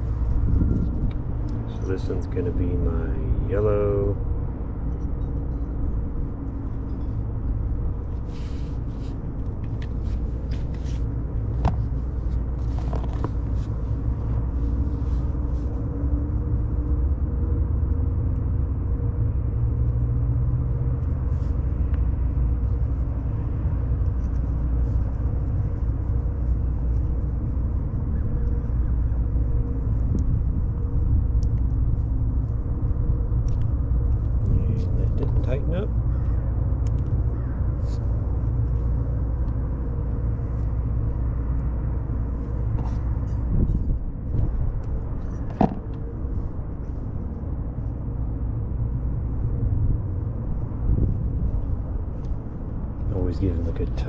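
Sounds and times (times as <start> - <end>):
faint constant hum: 0.0 - 54.0
low mechanical rumble: 0.0 - 54.0
light clicks and taps: 36.2 - 37.2.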